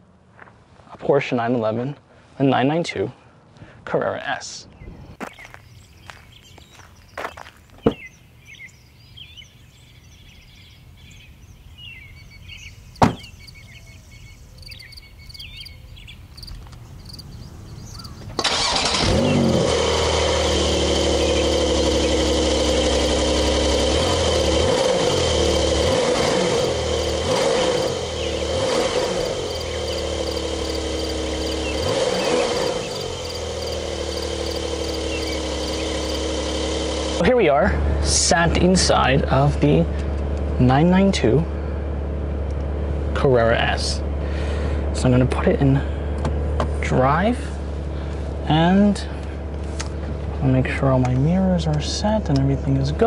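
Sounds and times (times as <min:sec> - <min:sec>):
birds chirping: 0:04.6 - 0:19.6, 0:20.4 - 0:23.8, 0:25.5 - 0:37.2
sharp knocks: 0:13.0 - 0:13.3
car engine starting and idling: 0:17.9 - 0:53.0.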